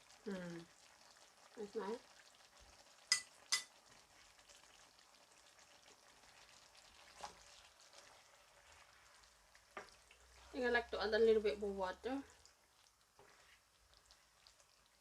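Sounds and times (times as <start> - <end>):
food sizzling in a pan: 0.0 - 15.0
utensil clinking against pan: 3.1 - 3.7.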